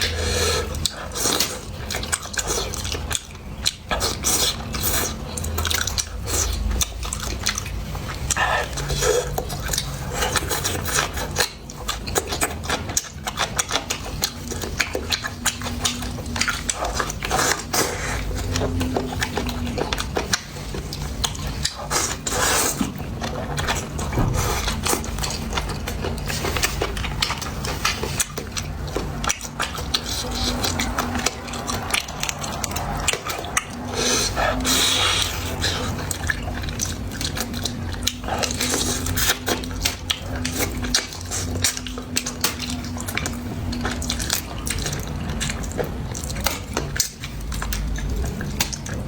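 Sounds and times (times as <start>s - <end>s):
chewing and mouth noises: 0.0s - 49.0s.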